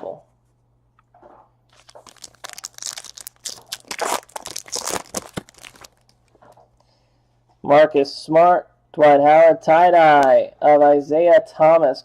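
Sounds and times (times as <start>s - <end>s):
foil wrapper tearing and crinkling: 1.7s - 6.4s.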